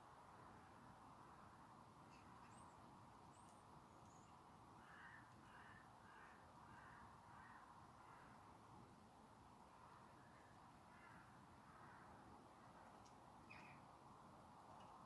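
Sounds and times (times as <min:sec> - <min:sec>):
thin high bird chirps: 0:13.4 - 0:13.8.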